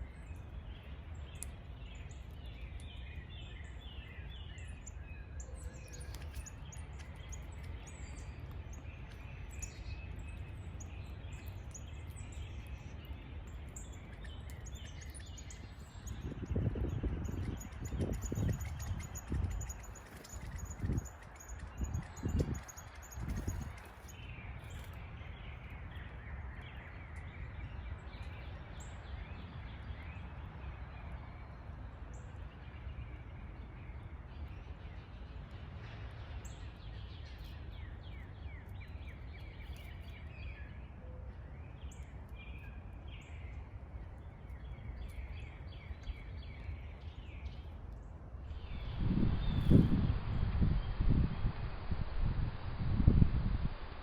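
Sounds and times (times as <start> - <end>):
small songbirds chirping: 0.0 - 54.0
low background rumble: 41.8 - 54.0.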